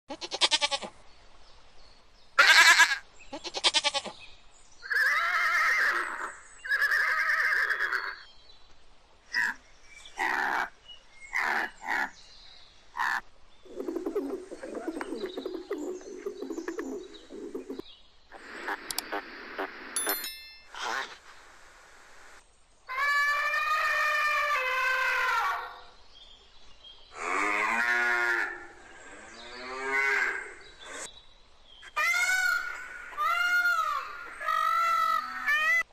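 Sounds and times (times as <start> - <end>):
goat bleating: 0.1 - 0.9
low steady chattering: 13.7 - 19.2.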